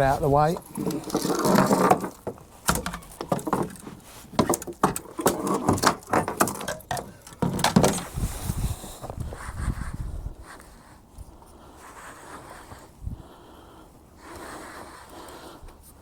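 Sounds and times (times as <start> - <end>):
fishing gear clattering: 0.4 - 8.1.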